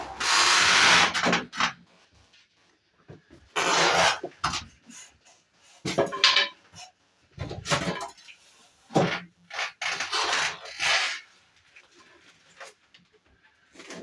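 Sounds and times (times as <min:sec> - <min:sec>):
hard objects clattering and knocking: 0:05.9 - 0:06.6.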